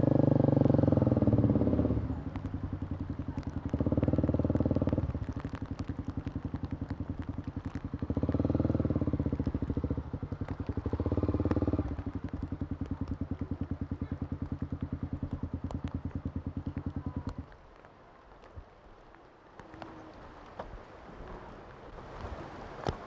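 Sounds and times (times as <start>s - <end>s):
motorcycle engine thumping and revving: 0.0s - 17.6s.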